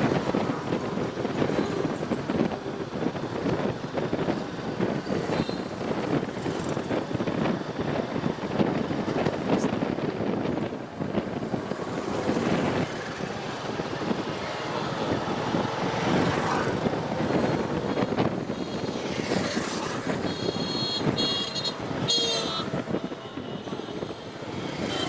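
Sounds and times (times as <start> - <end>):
wind and road noise: 0.0 - 25.0
vehicle horn beeping: 20.2 - 25.0.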